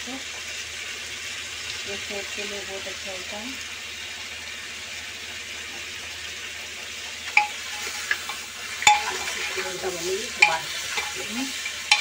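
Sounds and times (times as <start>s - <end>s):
meat sizzling in a pot: 0.0s - 12.0s
metal ladle knocking on pot: 7.4s - 9.6s, 10.4s - 12.0s.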